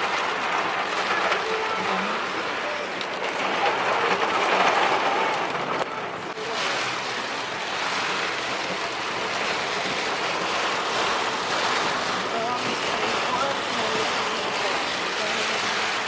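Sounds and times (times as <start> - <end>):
heavy rain rushing: 0.0 - 16.0.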